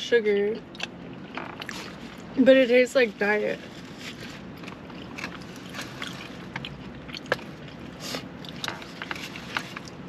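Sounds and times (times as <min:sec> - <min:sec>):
low steady hum: 0:00.0 - 0:10.0
chewing with clicks and smacks: 0:00.6 - 0:02.4, 0:04.4 - 0:10.0.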